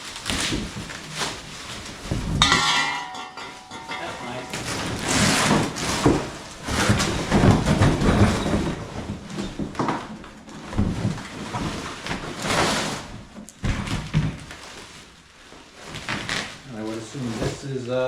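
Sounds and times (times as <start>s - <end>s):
packaging rustling: 0.0s - 18.0s
metal pipes knocking: 2.4s - 5.0s.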